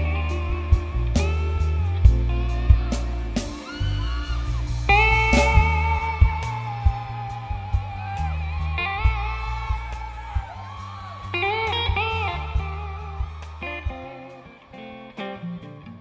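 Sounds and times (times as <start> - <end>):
guitar melody with bass and drums: 0.0 - 16.0.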